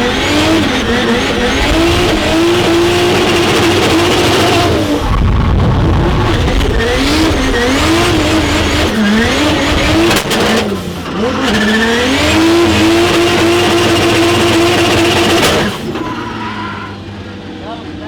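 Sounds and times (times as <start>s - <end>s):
car engine revving: 0.0s - 17.7s.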